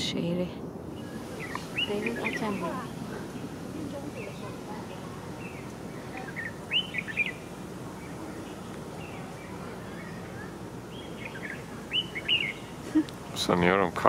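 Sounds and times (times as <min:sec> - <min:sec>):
low background hiss: 0:00.0 - 0:14.0
bird whistling song: 0:01.0 - 0:02.7, 0:05.4 - 0:12.8.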